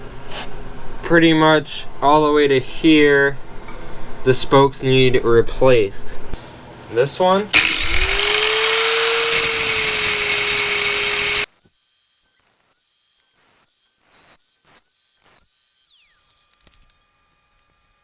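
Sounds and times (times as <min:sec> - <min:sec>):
rotary tool cutting steel: 0:07.6 - 0:18.0.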